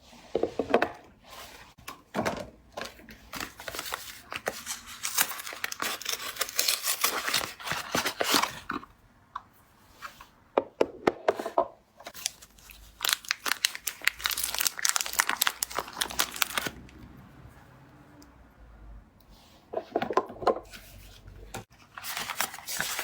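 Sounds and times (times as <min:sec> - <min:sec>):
packaging crinkling and tearing: 0:03.3 - 0:08.8, 0:12.1 - 0:17.0, 0:21.8 - 0:23.0.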